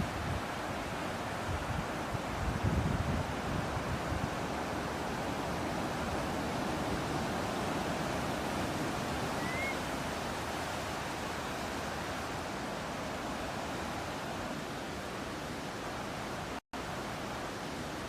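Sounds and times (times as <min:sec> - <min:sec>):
ocean surf: 0:00.0 - 0:18.0
rising bird chirp: 0:09.4 - 0:09.8.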